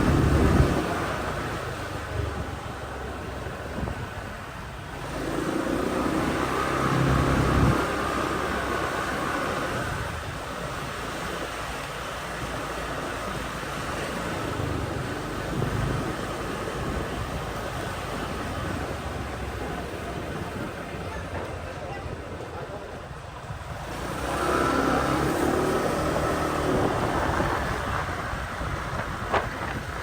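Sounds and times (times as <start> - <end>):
motorbike engine and road noise: 0.0 - 30.0
louder passing engine: 5.0 - 10.2, 23.7 - 29.9.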